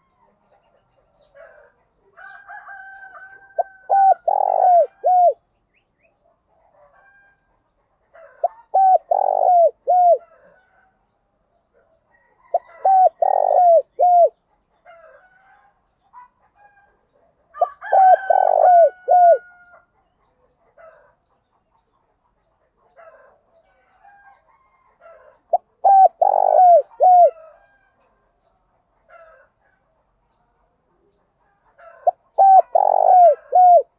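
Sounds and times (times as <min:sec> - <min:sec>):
dove cooing: 0:03.2 - 0:05.4, 0:08.2 - 0:10.6, 0:12.4 - 0:14.4, 0:17.6 - 0:19.7, 0:25.0 - 0:27.6, 0:31.8 - 0:33.9.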